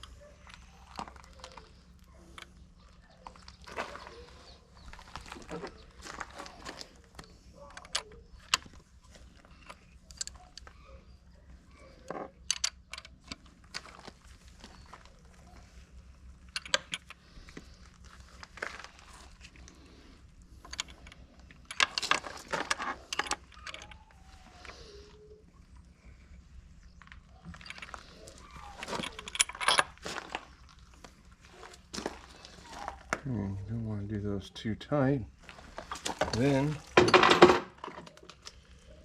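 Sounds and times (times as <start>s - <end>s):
metal tools clinking: 27.0s - 30.7s, 35.8s - 38.5s.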